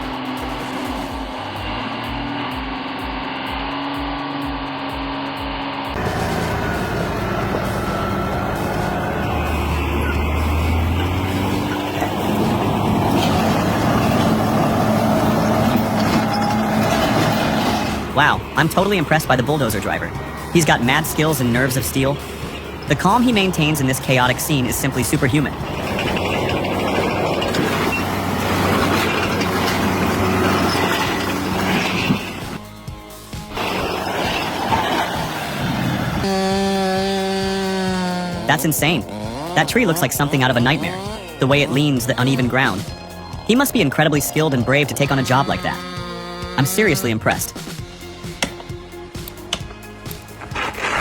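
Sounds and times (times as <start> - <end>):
higher steady engine note: 0.0 - 51.0
deep low engine note: 5.9 - 32.2.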